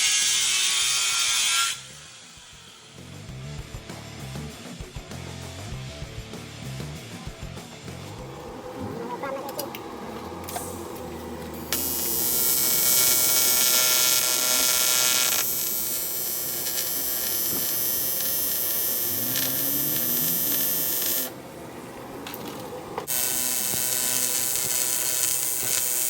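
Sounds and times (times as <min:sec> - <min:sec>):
welding arc buzzing hiss: 0:00.0 - 0:03.2, 0:10.3 - 0:21.4, 0:23.1 - 0:26.0.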